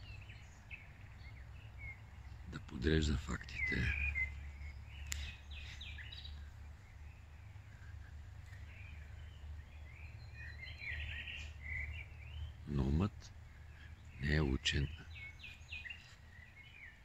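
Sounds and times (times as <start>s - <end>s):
songbirds chirping: 0.0s - 17.0s
steady low hum: 0.0s - 17.0s.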